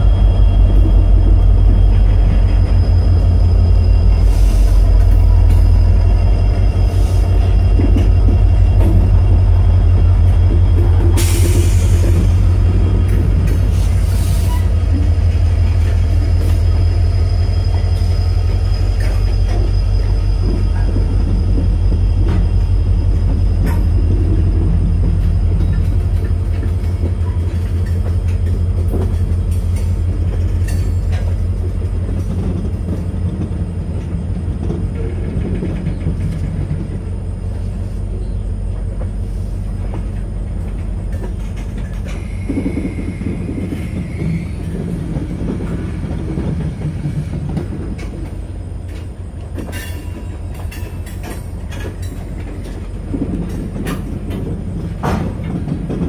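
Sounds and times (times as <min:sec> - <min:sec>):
high squeal: 0:00.0 - 0:26.2, 0:42.0 - 0:46.0
freight train wheels rumbling: 0:00.0 - 0:56.0.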